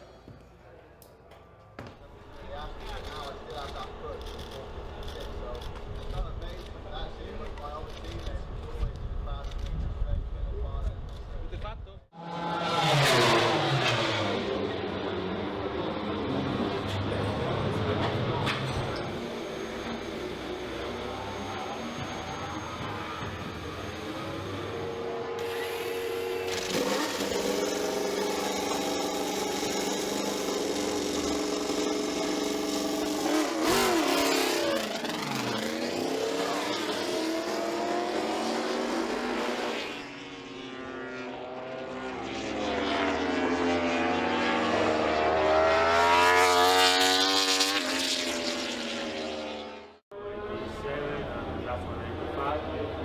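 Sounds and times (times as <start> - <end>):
race bike engine at high revs: 12.1 - 53.0.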